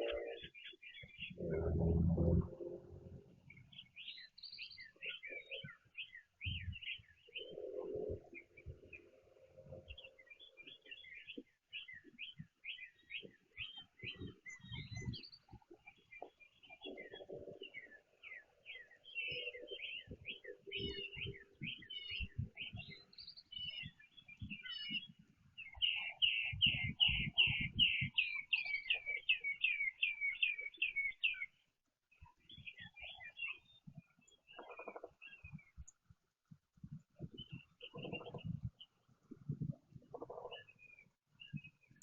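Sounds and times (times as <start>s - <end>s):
rapid repeated bird notes: 0.0s - 1.8s, 32.2s - 36.0s, 37.2s - 42.0s
songbirds chirping: 0.0s - 42.0s.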